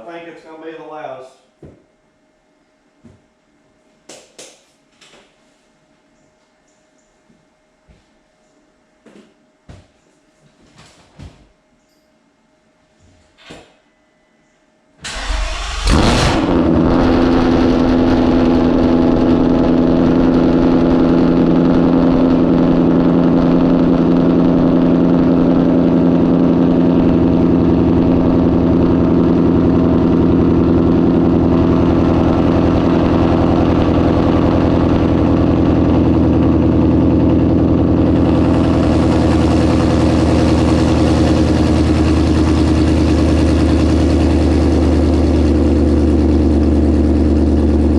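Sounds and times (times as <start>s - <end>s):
car engine cranking: 15.0s - 18.4s
car engine revving and idling: 15.1s - 47.9s.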